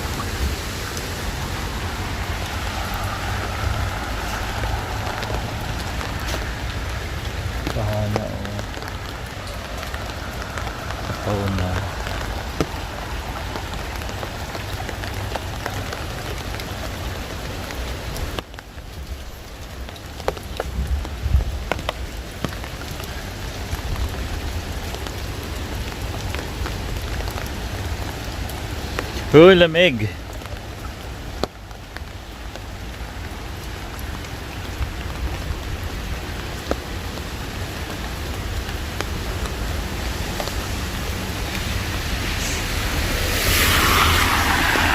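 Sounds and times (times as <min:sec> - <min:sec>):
hail and rain pelting down: 0:00.0 - 0:44.9.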